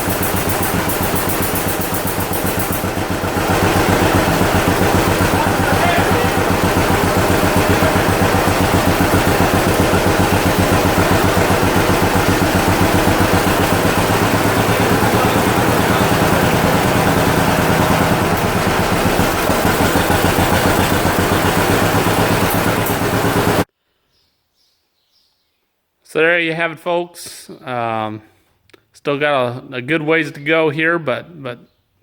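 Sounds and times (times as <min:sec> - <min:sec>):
tractor engine running: 0:00.0 - 0:23.7.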